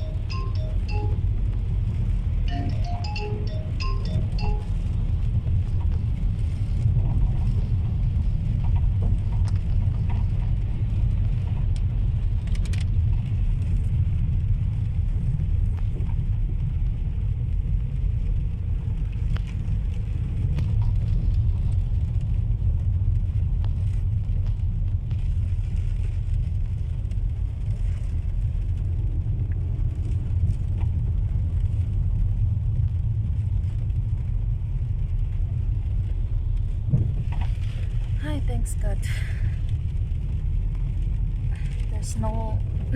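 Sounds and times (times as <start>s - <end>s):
car driving on wet road: 0.0s - 42.9s.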